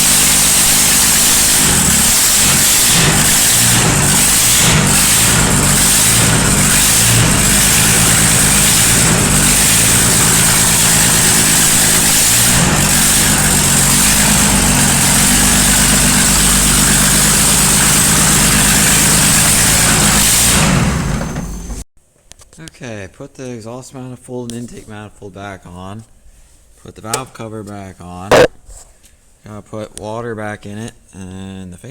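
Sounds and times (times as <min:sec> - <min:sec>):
diesel engine running: 0:00.0 - 0:21.8.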